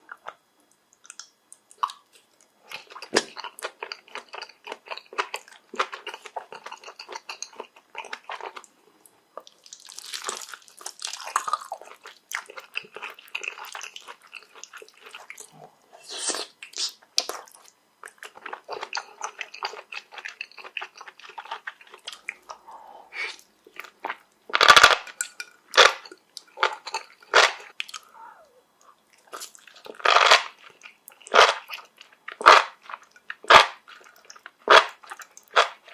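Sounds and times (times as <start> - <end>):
chewing crunchy food: 0.0 - 22.7, 23.3 - 28.1, 28.8 - 35.9.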